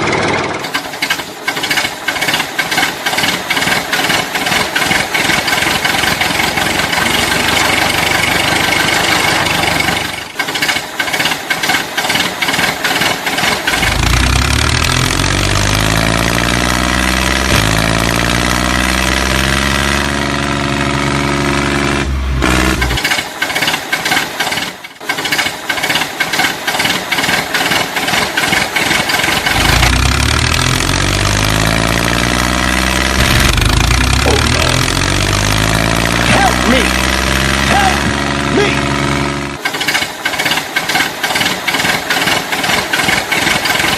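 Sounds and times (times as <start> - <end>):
engine running with knocking beat: 0.0 - 43.9
rapid clattering clicks: 0.1 - 14.1, 22.8 - 30.0, 39.6 - 43.9.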